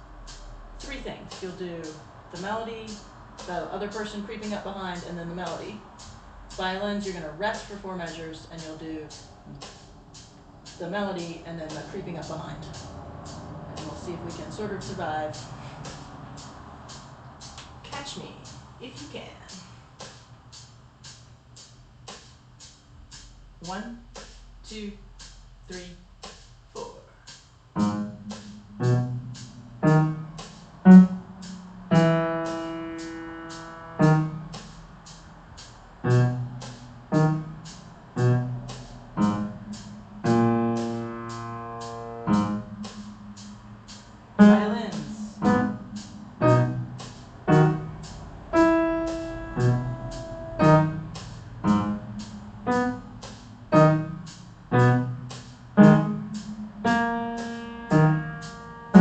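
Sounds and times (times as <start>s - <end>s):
piano bass notes and chords: 27.6s - 59.0s.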